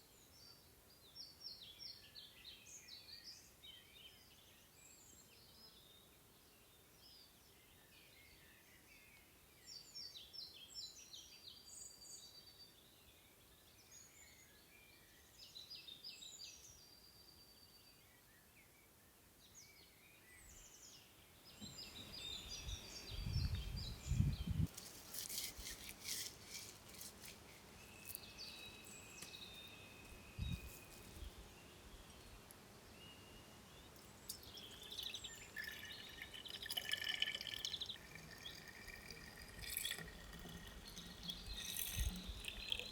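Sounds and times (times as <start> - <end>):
songbirds chirping: 0.0 - 42.9.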